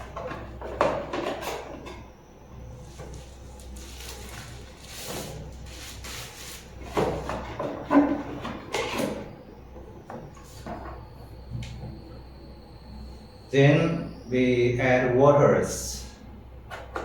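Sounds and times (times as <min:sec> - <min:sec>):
packaging rustling: 0:03.6 - 0:06.6.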